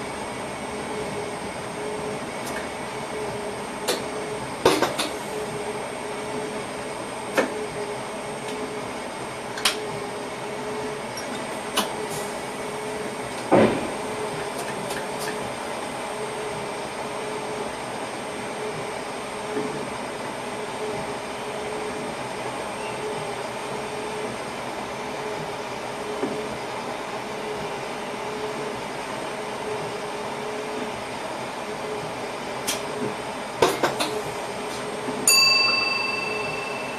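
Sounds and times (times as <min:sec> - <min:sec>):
train cab running hum: 0:00.0 - 0:36.9.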